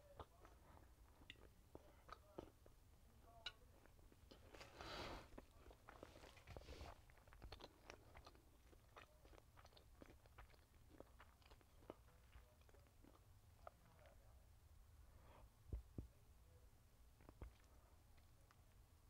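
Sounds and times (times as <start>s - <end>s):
chewing with mouth closed: 0.0s - 2.8s, 3.5s - 14.2s, 17.2s - 18.8s.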